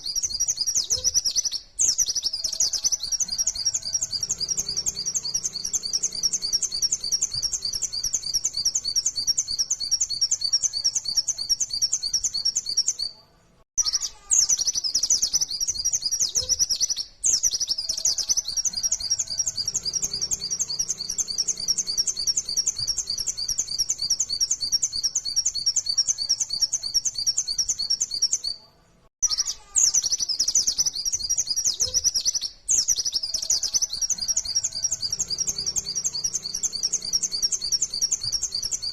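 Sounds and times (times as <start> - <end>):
fast high-pitched bird chirping: 0.0 - 13.2, 13.8 - 28.6, 29.2 - 38.9.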